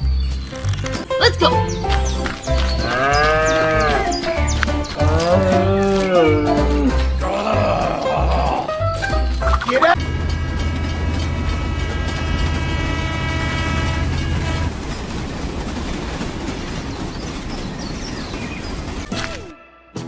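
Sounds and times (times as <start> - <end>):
train rumbling past: 1.1 - 8.3, 9.1 - 19.5
steady chord-like tone: 9.9 - 14.7.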